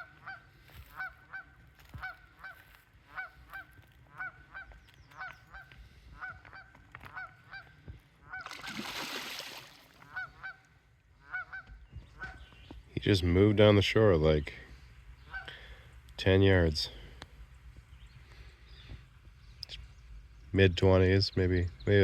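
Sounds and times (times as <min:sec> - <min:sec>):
geese honking: 0:00.0 - 0:08.8, 0:10.0 - 0:12.4, 0:15.2 - 0:15.8.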